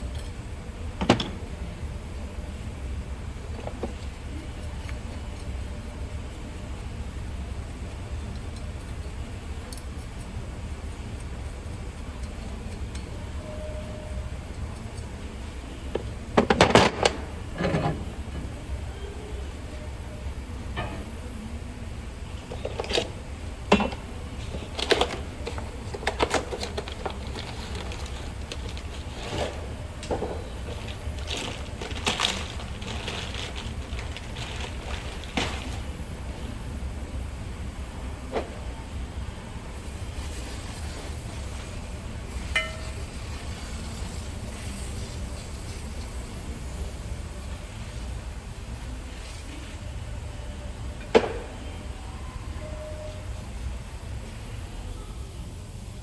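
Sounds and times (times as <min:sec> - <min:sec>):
low shop hum: 0:00.0 - 0:56.0
metal tools clanking: 0:23.7 - 0:35.6.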